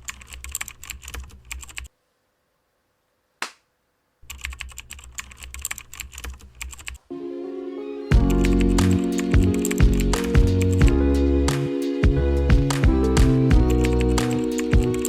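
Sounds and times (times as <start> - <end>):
keyboard typing: 0.0 - 1.9, 4.3 - 7.0, 8.1 - 15.0
music: 7.1 - 15.0.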